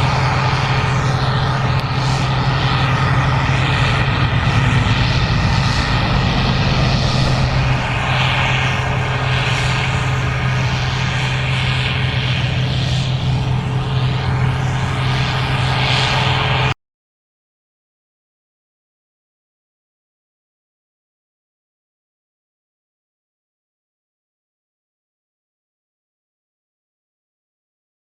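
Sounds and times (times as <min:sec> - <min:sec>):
combine engine drone: 0:00.0 - 0:16.8
pulsing hiss: 0:00.4 - 0:14.0.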